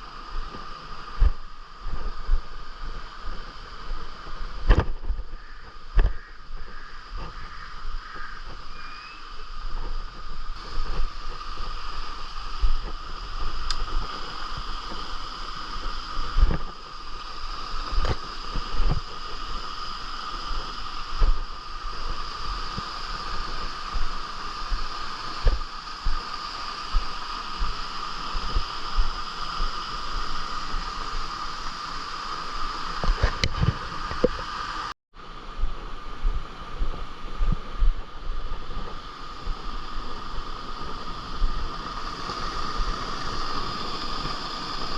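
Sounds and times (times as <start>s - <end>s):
running stream water: 0.0s - 44.9s
wind and handling knocks on microphone: 0.4s - 2.5s, 4.4s - 8.7s, 16.2s - 16.8s, 17.8s - 19.1s, 21.2s - 21.4s, 23.9s - 26.2s, 33.0s - 34.6s
high-pitched drone: 5.2s - 13.4s.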